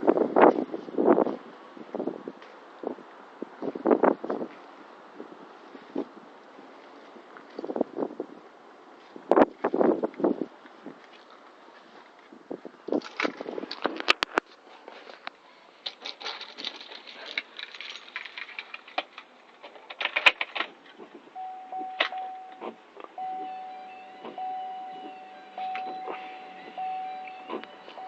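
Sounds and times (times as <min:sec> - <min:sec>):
handling noises: 0:08.9 - 0:28.0
keys jangling: 0:15.9 - 0:19.2
electronic warning chime: 0:21.4 - 0:28.0.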